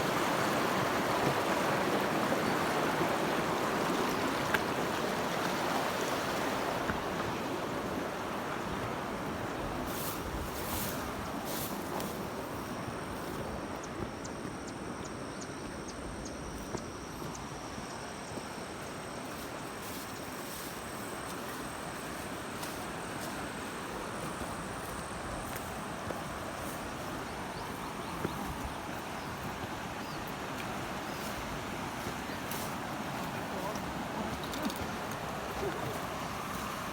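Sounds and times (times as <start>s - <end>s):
river water flowing: 0.0s - 36.9s
faint clicks: 34.3s - 35.3s.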